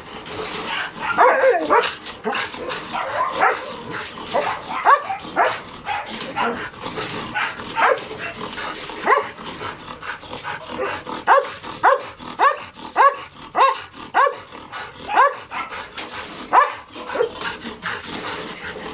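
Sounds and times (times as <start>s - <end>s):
dog barking: 0.7s - 1.9s, 2.9s - 6.6s, 7.4s - 8.1s, 9.0s - 9.4s, 11.3s - 14.5s, 15.1s - 15.7s, 16.5s - 17.3s.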